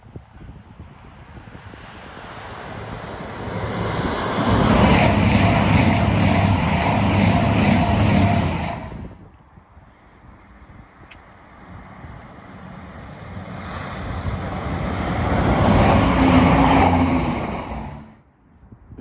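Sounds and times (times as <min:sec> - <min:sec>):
train engine noise: 0:01.3 - 0:09.3, 0:11.4 - 0:18.2.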